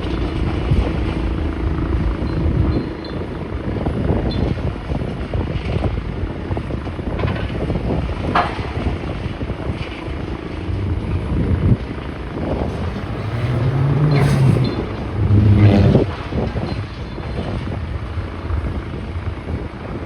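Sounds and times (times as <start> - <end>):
engine running: 0.0 - 20.0
knocks and clatter: 12.5 - 16.8.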